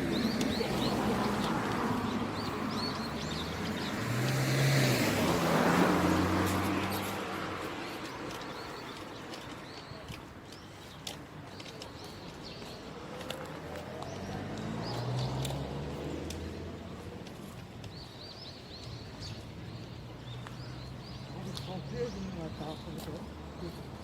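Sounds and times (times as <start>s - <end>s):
car passing by: 0.0s - 8.6s, 13.1s - 17.3s
small birds chirping: 0.0s - 24.0s.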